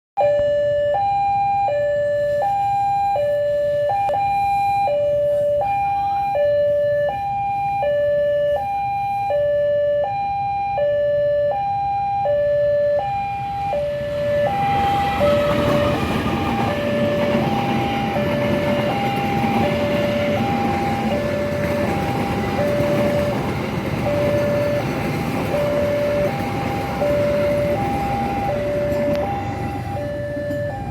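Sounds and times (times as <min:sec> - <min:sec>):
level crossing alarm two-tone: 0:00.2 - 0:30.9
rumble of passing train: 0:13.0 - 0:30.9.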